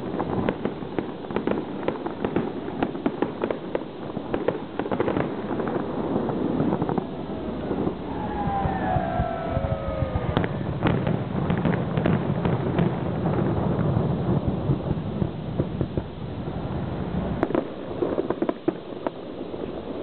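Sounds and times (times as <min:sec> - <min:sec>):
fireworks popping and cracking: 0:00.0 - 0:20.0
low rumble: 0:06.4 - 0:11.6.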